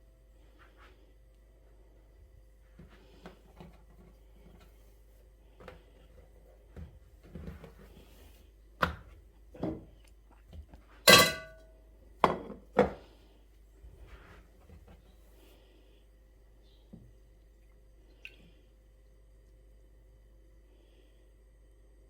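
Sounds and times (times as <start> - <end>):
kitchenware knocking and clattering: 11.1 - 11.6
ringing metal clang: 11.1 - 11.7.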